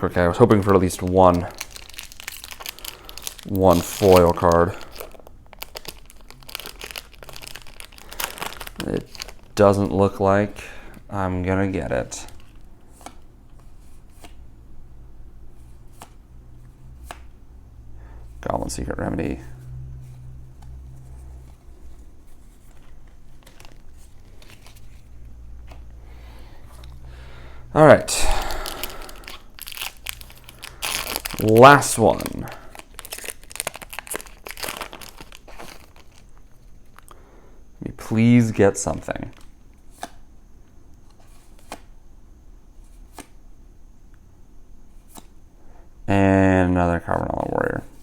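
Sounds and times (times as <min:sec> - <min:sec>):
paper cards rustling and ticking: 0:00.0 - 0:10.6, 0:20.5 - 0:25.9, 0:28.4 - 0:37.1
steady low hum: 0:00.0 - 0:48.0
trading cards being flipped: 0:12.3 - 0:14.4, 0:20.0 - 0:25.9, 0:41.0 - 0:41.9, 0:42.9 - 0:43.4.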